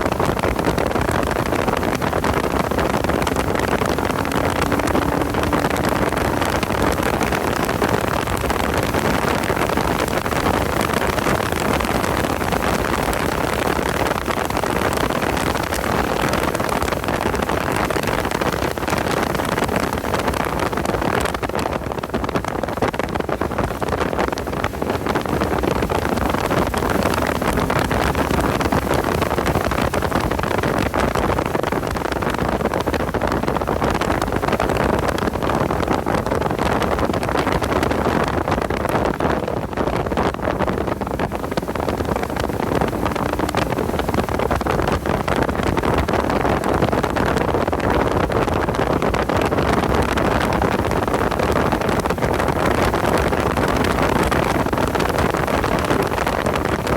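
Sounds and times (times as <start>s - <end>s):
car engine running at speed: 0.0s - 56.9s
wind noise: 0.0s - 56.9s.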